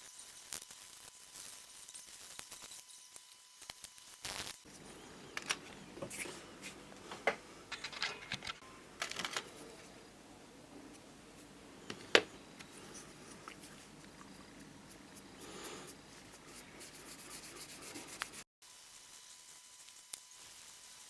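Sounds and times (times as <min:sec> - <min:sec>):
hands handling small parts: 0:05.3 - 0:09.9.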